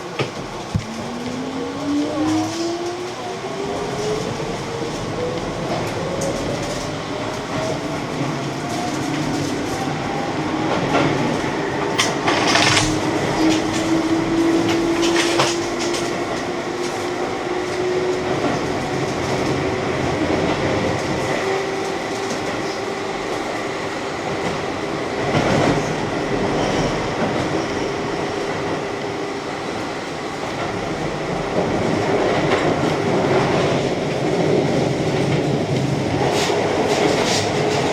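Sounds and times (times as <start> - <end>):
electric train motors whining: 8.2 - 15.5
wheels clacking over rail joints: 11.9 - 17.1.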